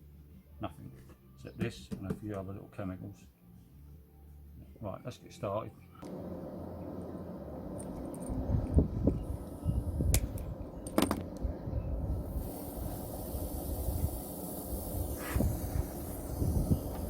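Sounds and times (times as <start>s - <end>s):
welding torch hissing: 6.0s - 17.0s.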